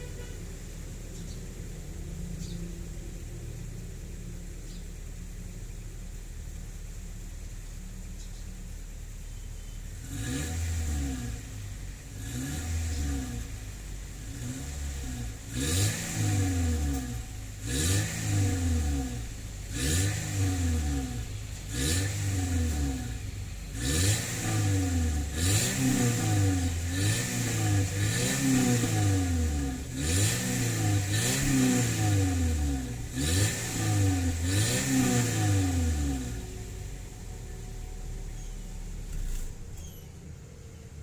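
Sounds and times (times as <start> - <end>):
car engine revving: 8.6 - 39.9.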